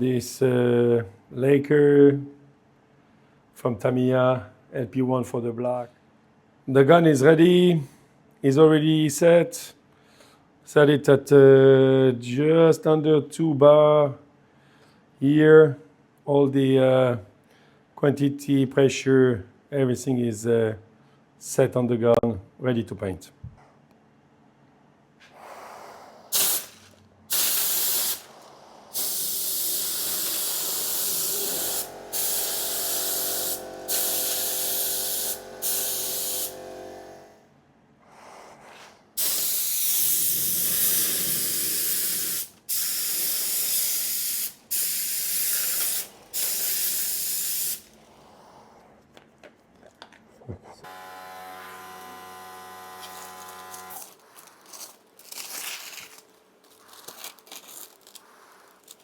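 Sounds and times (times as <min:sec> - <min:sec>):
spray gun hissing: 0:26.3 - 0:37.3, 0:39.2 - 0:48.0
steady hum: 0:28.2 - 0:37.5.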